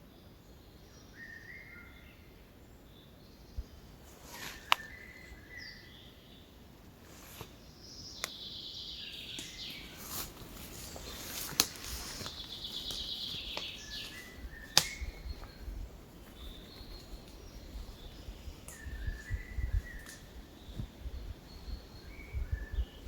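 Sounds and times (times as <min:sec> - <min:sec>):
songbirds trilling: 0:00.0 - 0:23.0
low whistled bird notes: 0:10.9 - 0:15.8, 0:16.4 - 0:23.0
sharp clicks: 0:14.7 - 0:15.1.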